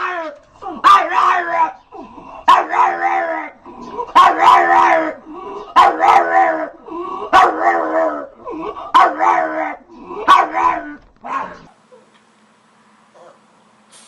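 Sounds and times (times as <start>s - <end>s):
dog barking: 0.8s - 1.6s, 2.5s - 3.3s, 4.1s - 6.7s, 7.3s - 8.3s, 8.9s - 11.7s.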